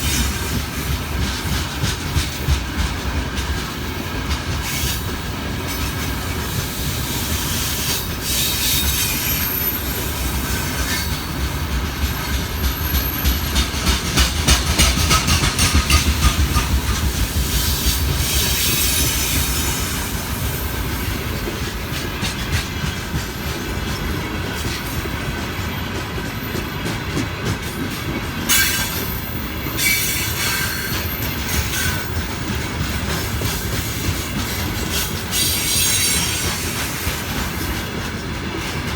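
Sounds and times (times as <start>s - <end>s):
train rumble: 0.0s - 38.9s
train wheels clicking over rail joints: 0.0s - 38.9s
high wheel squeal: 8.2s - 11.3s, 11.9s - 13.7s, 28.5s - 32.2s, 34.4s - 36.8s.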